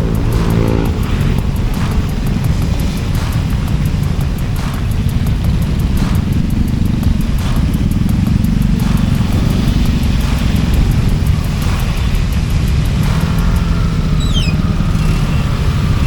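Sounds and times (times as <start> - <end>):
scooter engine and road rumble: 0.0 - 16.0.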